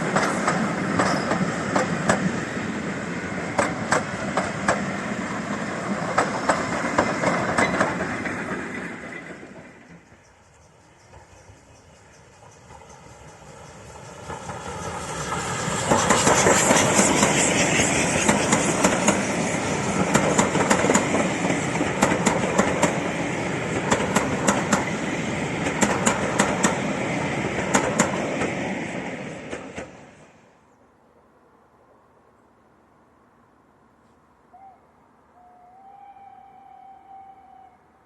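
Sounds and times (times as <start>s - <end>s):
wheels clicking over rail joints: 0.0s - 2.4s, 3.5s - 11.4s, 20.0s - 30.0s
steam train passing: 0.0s - 32.0s, 32.7s - 38.0s.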